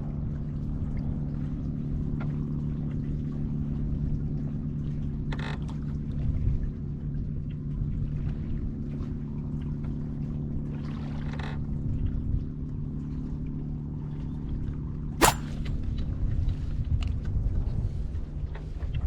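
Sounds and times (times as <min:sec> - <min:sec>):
sharp click: 0:15.2 - 0:15.5.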